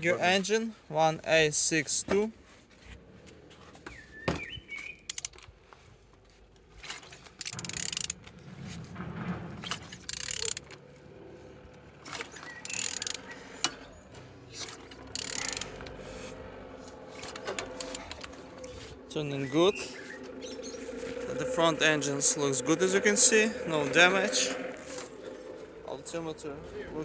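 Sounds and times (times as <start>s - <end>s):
engine grinding as it rotates: 0.0s - 27.0s
ratchet wrench clicking: 5.1s - 5.4s, 7.4s - 8.2s, 10.1s - 10.7s, 12.6s - 13.8s, 15.1s - 16.0s, 17.2s - 18.4s.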